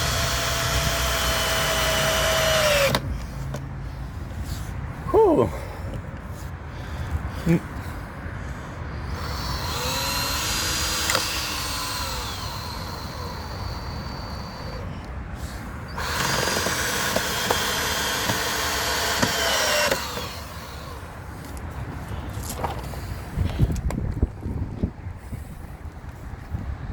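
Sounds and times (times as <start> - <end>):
cordless drill driving screws: 0.0 - 3.1, 9.1 - 15.0, 15.9 - 21.0.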